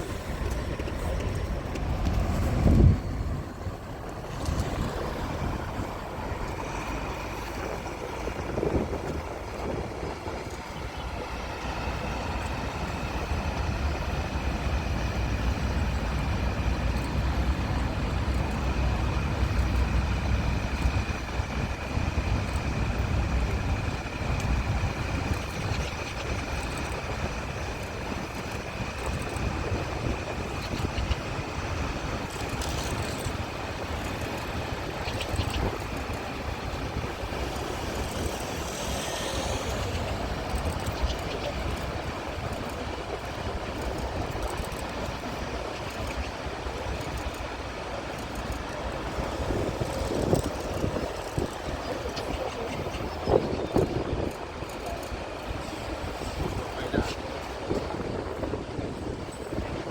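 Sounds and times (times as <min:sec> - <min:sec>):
rail vehicle engine rumble: 0:00.0 - 0:59.9
thin high whine: 0:20.0 - 0:42.8.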